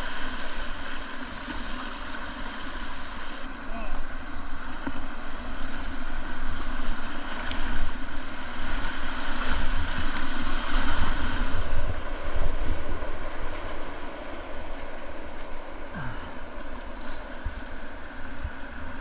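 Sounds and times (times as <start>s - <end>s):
wind buffeting microphone: 7.7s - 15.6s.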